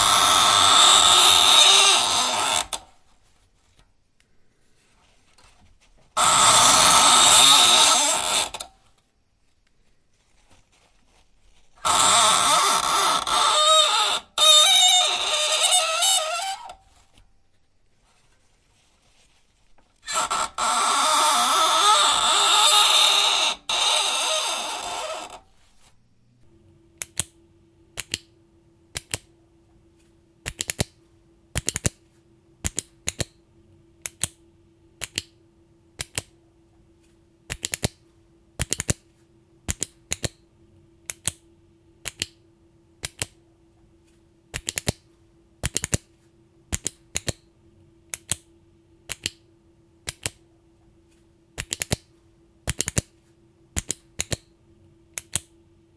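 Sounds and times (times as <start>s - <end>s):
faint steady hum: 0.0s - 55.9s
sharp clicks: 27.0s - 29.3s, 30.4s - 33.4s, 34.0s - 34.4s, 35.0s - 35.4s, 36.0s - 36.4s, 37.5s - 38.0s, 38.6s - 39.1s, 39.7s - 40.4s, 41.0s - 42.4s, 43.0s - 43.4s, 44.5s - 46.1s, 46.7s - 47.5s, 48.1s - 48.5s, 49.1s - 50.4s, 51.6s - 52.1s, 52.7s - 53.2s, 53.8s - 54.5s, 55.1s - 55.6s.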